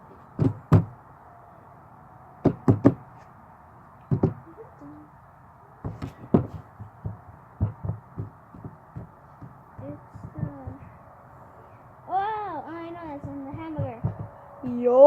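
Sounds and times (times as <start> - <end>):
dull knocks: 0.4 - 0.9, 2.4 - 3.0, 4.1 - 4.4, 5.8 - 10.9, 13.2 - 14.4.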